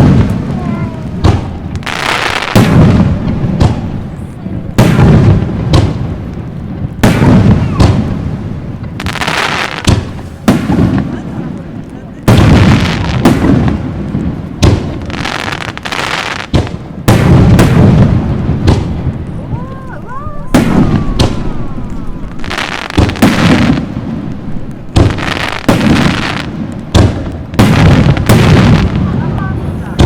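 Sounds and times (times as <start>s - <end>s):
fireworks bursting with sharp bangs: 0.0s - 30.0s.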